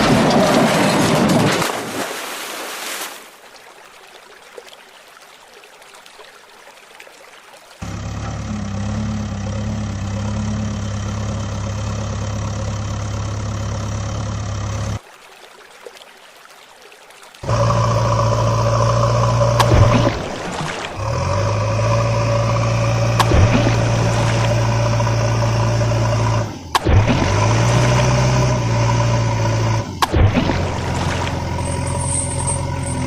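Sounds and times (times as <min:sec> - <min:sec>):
louder steady engine: 0:07.8 - 0:15.0, 0:17.4 - 0:33.0
vehicle engine idling: 0:07.8 - 0:15.0, 0:17.4 - 0:33.0.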